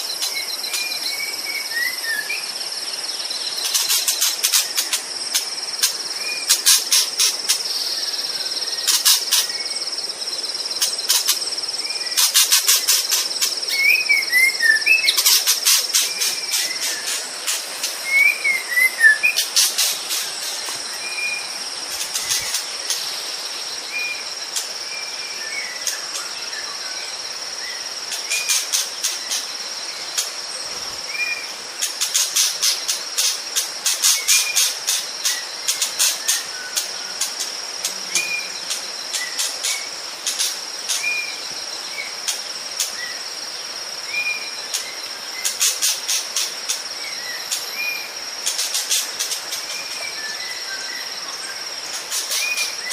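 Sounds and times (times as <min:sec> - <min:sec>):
insects droning: 0:00.0 - 0:52.9
rapid high-pitched insect pulsing: 0:03.3 - 0:24.9
bird whistling: 0:18.1 - 0:19.4.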